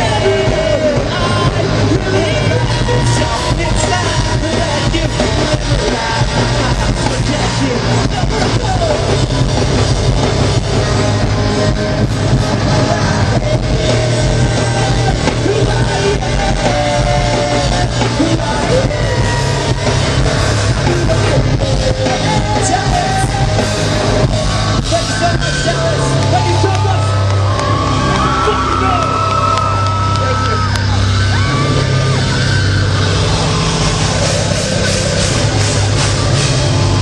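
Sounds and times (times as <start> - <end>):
shouted vocals: 0.0 - 9.0, 24.9 - 34.2
bass guitar: 0.0 - 37.0
distorted electric guitars: 0.0 - 37.0
drums: 0.0 - 37.0.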